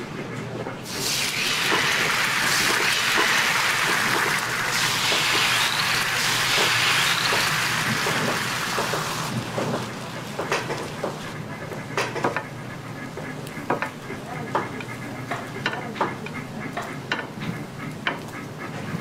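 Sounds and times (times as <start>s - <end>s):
egg sizzling in hot pan: 0.9s - 9.4s.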